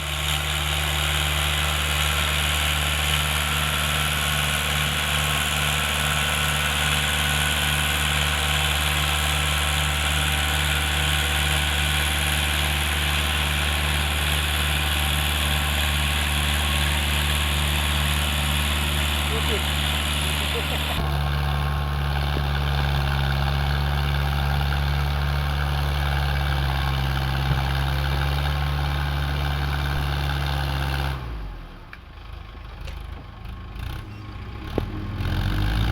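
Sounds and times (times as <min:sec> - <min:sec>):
tractor diesel engine running: 0:00.0 - 0:35.9.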